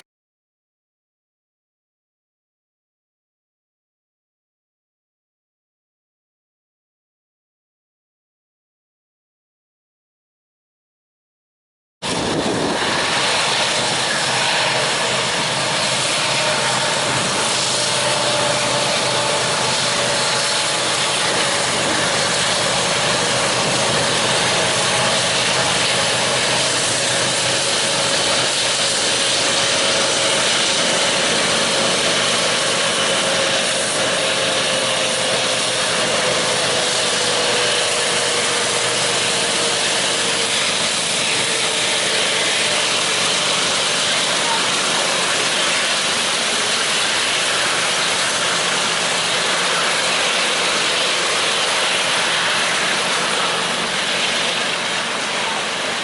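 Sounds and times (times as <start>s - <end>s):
freight train running by: 12.0s - 56.0s.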